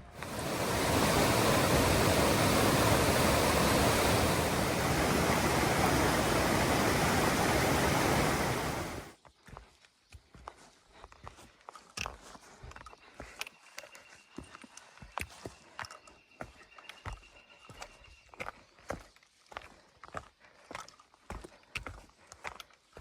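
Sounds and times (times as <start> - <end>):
steady rushing noise: 0.0 - 9.1.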